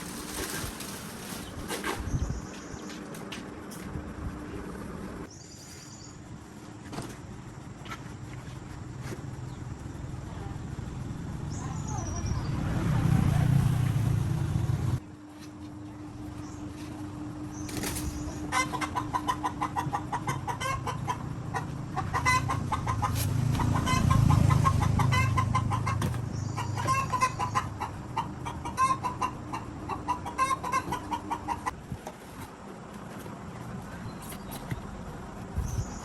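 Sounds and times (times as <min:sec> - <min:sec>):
chickens clucking: 0:17.7 - 0:31.8.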